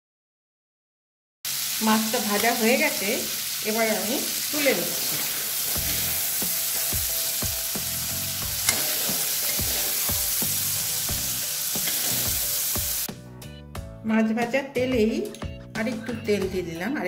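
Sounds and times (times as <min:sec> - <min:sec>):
shrimps sizzling in oil: 0:01.5 - 0:13.1
utensil scraping pan: 0:08.5 - 0:10.4.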